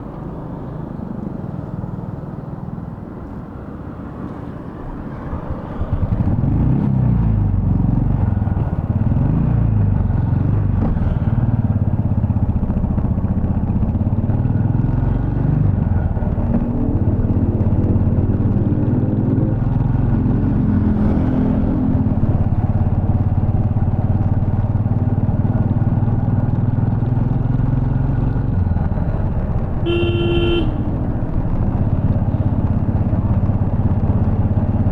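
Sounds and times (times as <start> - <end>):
motorcycle engine running: 7.3 - 34.9.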